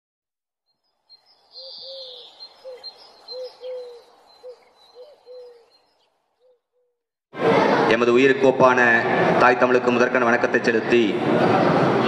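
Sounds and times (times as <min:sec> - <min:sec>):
faint high bird chirping: 0:00.7 - 0:07.0
bird calling low notes: 0:01.2 - 0:07.0.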